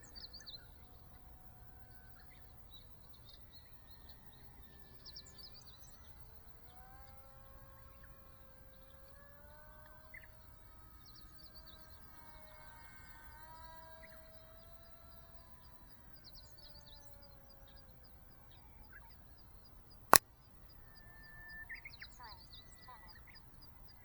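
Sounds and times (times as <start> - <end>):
model plane motor whine: 0.0 - 18.4.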